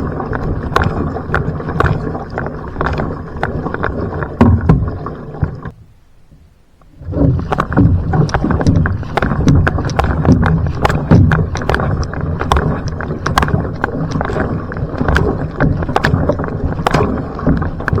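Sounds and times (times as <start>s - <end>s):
paddle strokes splashing: 0.0s - 5.8s, 6.8s - 18.0s
water rushing along hull: 0.0s - 18.0s
sharp clicks and knocks: 7.5s - 18.0s.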